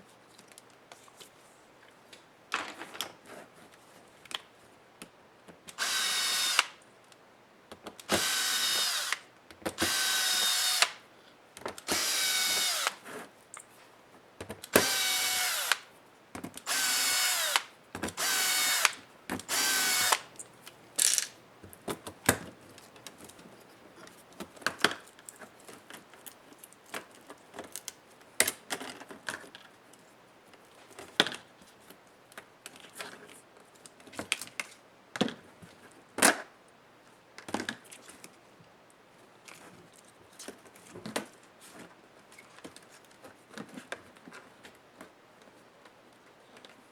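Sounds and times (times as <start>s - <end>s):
electric screwdriver whirring: 5.8s - 6.8s, 8.1s - 9.2s, 9.8s - 11.0s, 11.9s - 13.0s, 14.8s - 15.8s, 16.7s - 20.3s
small parts clicking and knocking: 16.4s - 21.4s.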